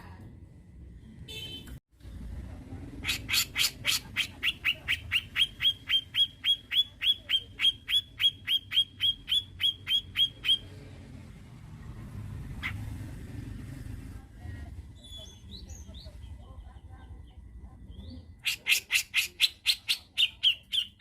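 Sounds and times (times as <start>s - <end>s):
bird calling sharp notes: 3.0s - 10.7s.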